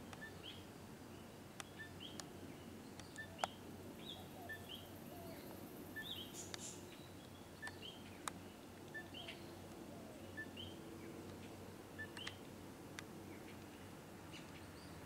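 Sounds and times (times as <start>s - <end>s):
faint low hum: 0.0s - 15.0s
sharp clicks: 12.0s - 13.1s.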